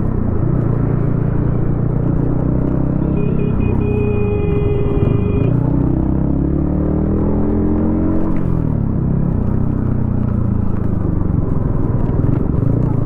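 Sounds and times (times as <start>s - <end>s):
motorcycle engine revving: 0.6s - 9.8s.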